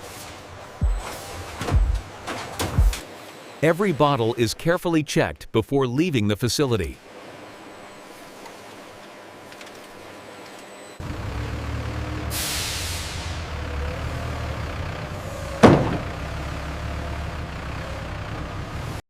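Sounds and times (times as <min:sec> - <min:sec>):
truck engine rumbling: 0:11.0 - 0:19.0
air release hiss: 0:12.3 - 0:13.4.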